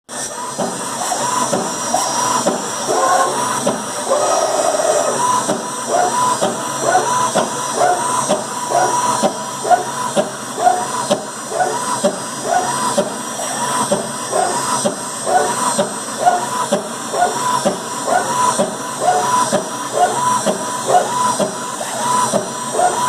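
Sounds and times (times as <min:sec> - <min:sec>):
motors whining in rising chirps: 0:00.1 - 0:23.0.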